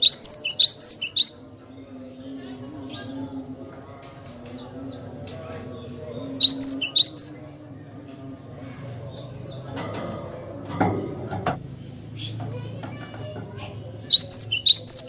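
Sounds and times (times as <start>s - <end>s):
bird high chirps: 0.0s - 1.5s, 6.2s - 7.4s, 13.6s - 15.0s.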